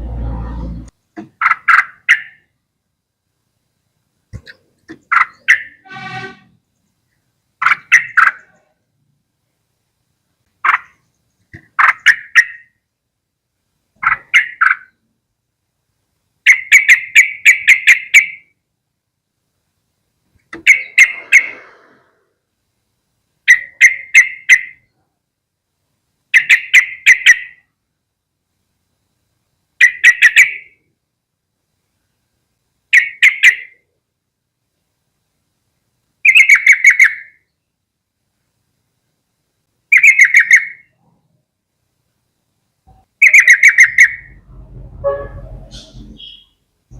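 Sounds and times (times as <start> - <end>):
bird chattering calls: 1.3 - 2.4, 4.4 - 5.8, 7.6 - 8.7, 10.6 - 12.7, 14.0 - 15.0, 16.5 - 18.4, 20.6 - 22.1, 23.5 - 24.8, 26.3 - 27.6, 29.8 - 30.8, 32.9 - 33.8, 36.2 - 37.4, 39.9 - 40.9, 43.2 - 44.4, 45.6 - 46.6.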